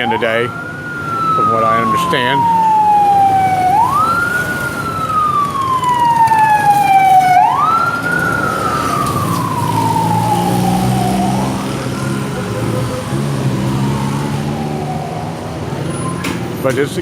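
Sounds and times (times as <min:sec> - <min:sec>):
emergency siren wailing: 0:00.0 - 0:16.7.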